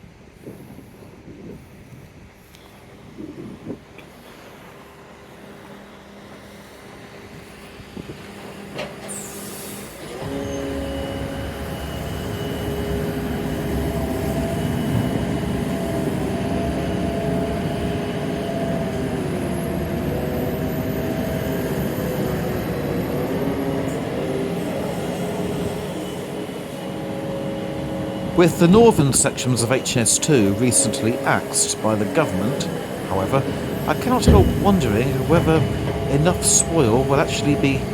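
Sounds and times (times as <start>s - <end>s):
locomotive engine rumble: 10.2s - 37.9s
steady tones: 28.2s - 37.9s.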